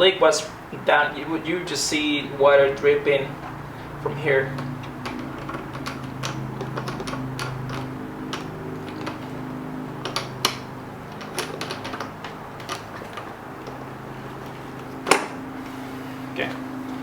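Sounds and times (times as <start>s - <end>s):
hose coupling clicking and tapping: 4.5s - 9.3s.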